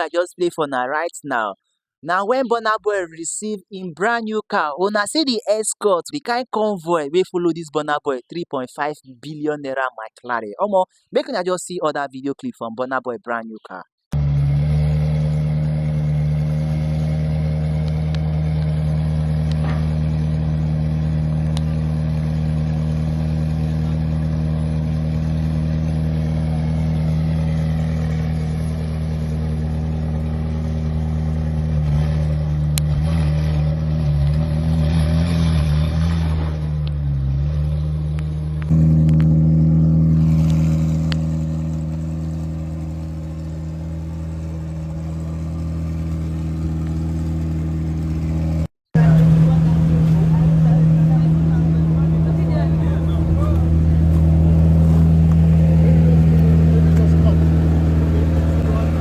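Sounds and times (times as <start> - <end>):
loud engine sound: 14.1 - 59.0
car engine idling: 14.2 - 59.0.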